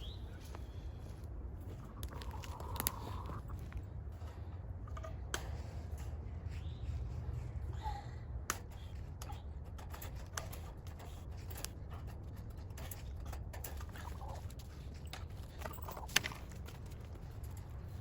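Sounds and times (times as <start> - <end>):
chickens clucking: 1.7 - 3.8, 10.4 - 17.2.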